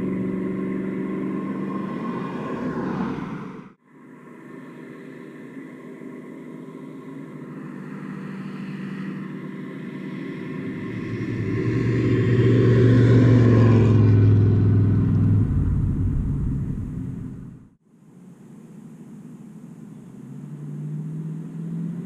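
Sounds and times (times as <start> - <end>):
truck exhaust driving past: 0.0 - 3.8, 6.7 - 17.8.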